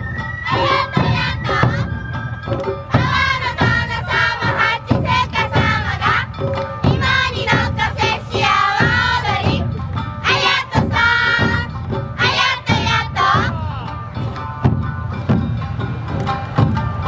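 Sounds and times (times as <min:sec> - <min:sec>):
drums beating: 0:00.0 - 0:17.0
group singing: 0:00.4 - 0:01.9, 0:02.9 - 0:14.1.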